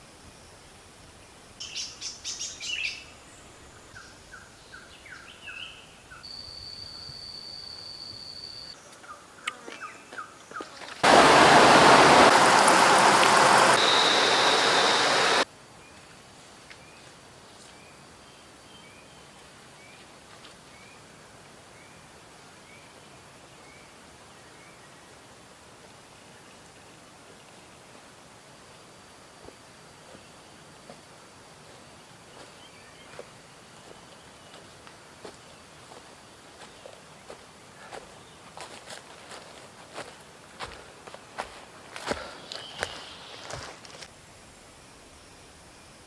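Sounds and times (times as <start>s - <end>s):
faint rising chirps: 11.0s - 15.4s
loud even hiss: 11.0s - 15.5s
birds chirping and whistling: 11.6s - 15.4s.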